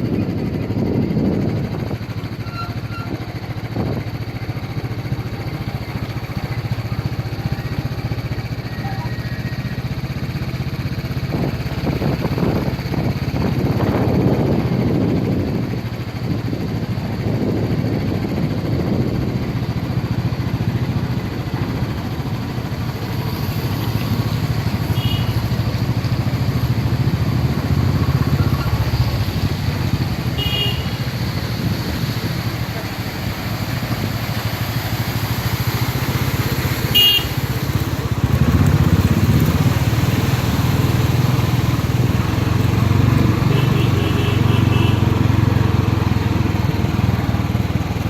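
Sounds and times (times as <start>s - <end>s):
wind noise: 0.0s - 4.3s, 11.2s - 22.2s, 31.2s - 32.8s
motorcycle engine rumble: 0.0s - 48.0s.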